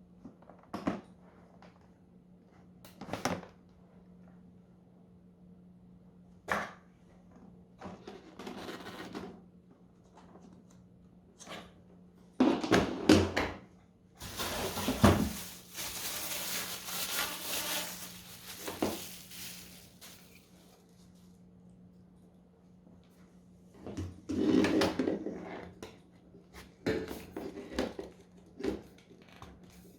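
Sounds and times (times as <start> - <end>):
packaging rustling: 14.2 - 20.8.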